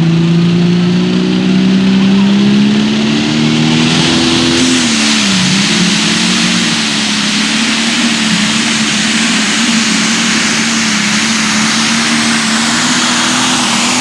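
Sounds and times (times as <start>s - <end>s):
diesel engine running hard: 0.0s - 14.0s
rushing hiss: 3.6s - 14.0s.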